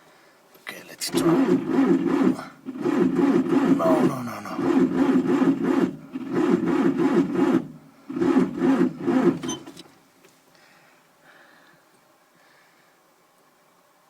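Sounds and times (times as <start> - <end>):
starter motor cranking engine: 0.7 - 10.0.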